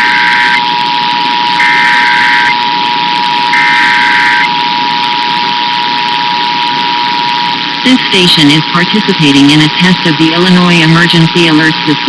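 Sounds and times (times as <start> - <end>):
two-tone alert signal: 0.0 - 0.6, 1.6 - 2.6, 3.5 - 4.5
warbling digital data bursts: 0.0 - 0.6, 1.5 - 2.6, 3.5 - 4.5.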